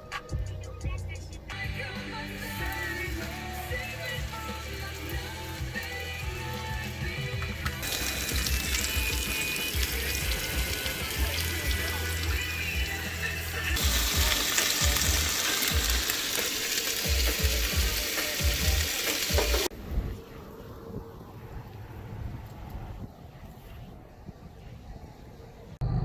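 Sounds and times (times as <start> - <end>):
food sizzling in a pan: 2.0 - 19.7.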